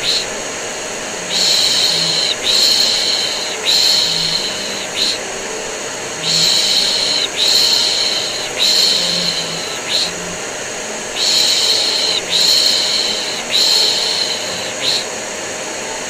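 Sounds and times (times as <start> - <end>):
vacuum cleaner drone: 0.0 - 16.0
person shushing a baby: 1.2 - 5.4, 6.1 - 10.4, 11.1 - 15.2.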